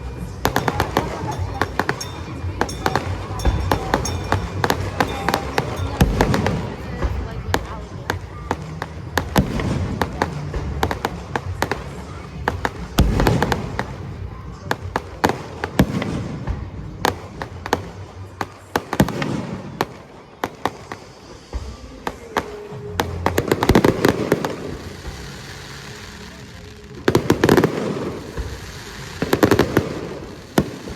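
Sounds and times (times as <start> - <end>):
fireworks cracking and crackling: 0.0 - 30.9
firework shells booming: 0.1 - 26.4.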